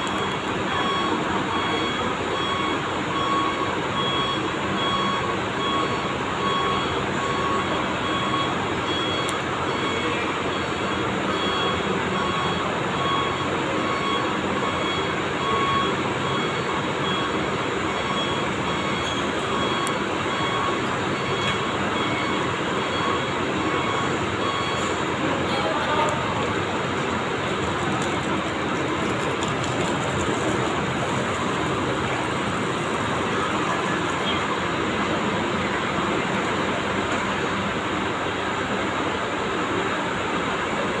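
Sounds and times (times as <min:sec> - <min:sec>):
reversing alarm beeping: 0:00.0 - 0:27.1
diesel coach engine running: 0:00.0 - 0:41.0.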